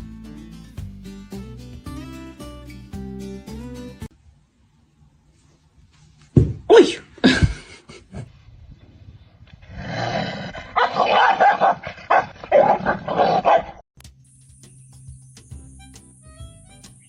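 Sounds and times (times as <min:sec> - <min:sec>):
dog barking: 0:10.7 - 0:13.8.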